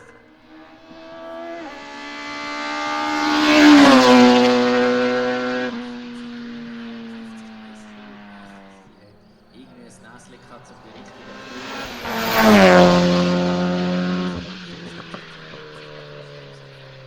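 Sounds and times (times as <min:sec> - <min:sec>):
race car engine accelerating: 0:00.0 - 0:17.0.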